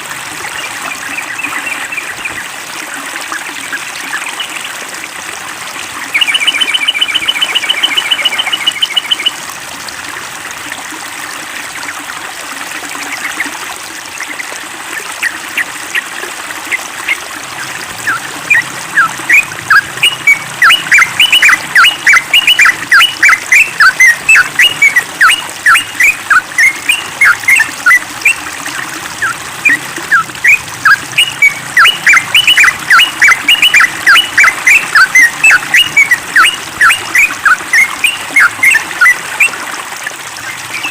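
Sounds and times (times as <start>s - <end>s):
bird trilling: 6.1s - 9.3s, 18.0s - 28.4s, 29.2s - 39.5s, 40.7s - 40.9s
bird chattering: 18.1s - 27.6s.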